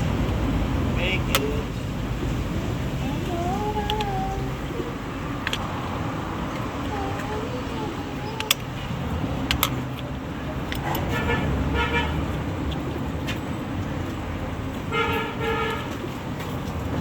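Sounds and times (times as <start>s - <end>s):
steady low rumble: 0.0s - 15.4s
sharp clicks: 3.7s - 4.2s, 6.4s - 8.8s
vehicle horn double toots: 11.0s - 12.2s, 14.9s - 16.0s.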